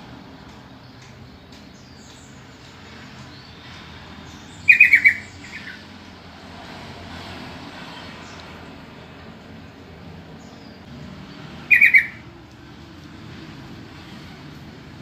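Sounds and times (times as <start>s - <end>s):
bird chattering calls: 4.5s - 5.8s, 11.6s - 12.3s.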